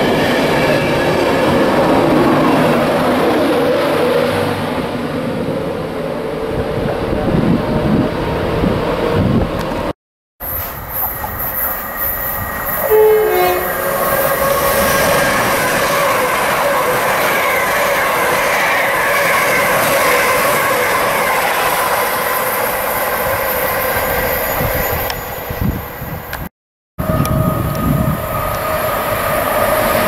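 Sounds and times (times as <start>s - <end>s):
train rushing past: 0.0s - 26.4s, 27.0s - 30.0s
train horn two-note: 12.8s - 13.9s.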